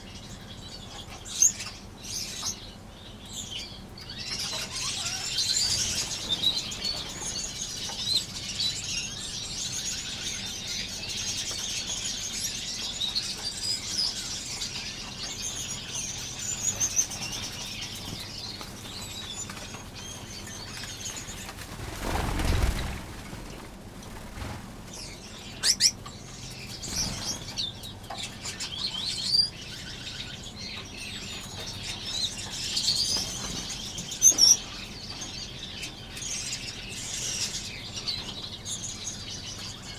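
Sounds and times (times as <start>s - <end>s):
finches chirping and twittering: 0.0s - 39.9s
wings fluttering: 4.5s - 9.1s, 16.6s - 25.9s, 26.6s - 27.9s.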